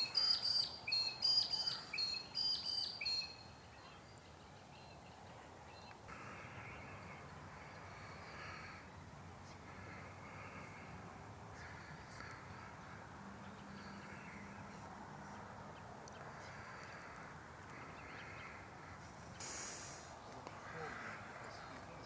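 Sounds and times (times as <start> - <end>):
background hum: 0.0 - 22.0
crows cawing: 11.6 - 13.2, 16.3 - 19.0, 20.5 - 21.8
loud hiss: 19.2 - 20.2.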